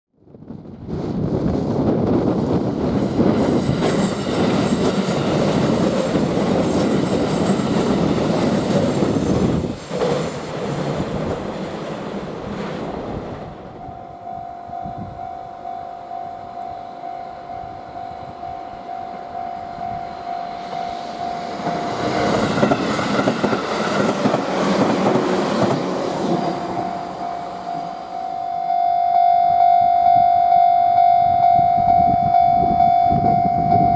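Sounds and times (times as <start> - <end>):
train rumble: 0.4 - 28.7
freight train wheels clattering: 2.2 - 13.7, 18.8 - 28.3
lightly pulsing tone: 26.4 - 33.9.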